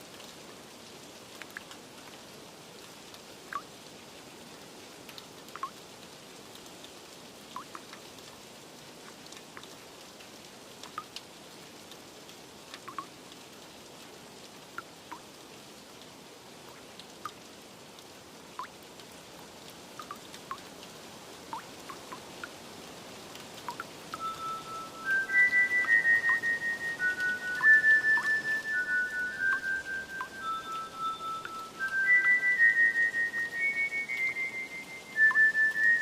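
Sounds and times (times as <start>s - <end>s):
steady rain hiss: 0.0s - 36.0s
water drops plinking: 5.6s - 5.8s, 7.6s - 7.9s, 12.8s - 13.1s, 20.0s - 20.6s, 23.7s - 36.0s.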